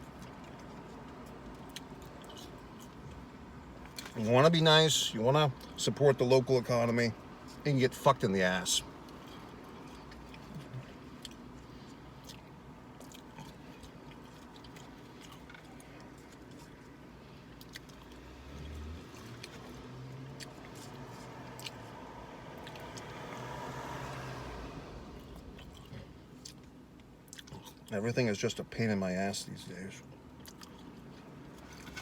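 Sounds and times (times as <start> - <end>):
person chewing food: 0.0 - 4.2, 9.0 - 22.0, 22.6 - 23.2, 25.2 - 27.9, 30.3 - 32.0.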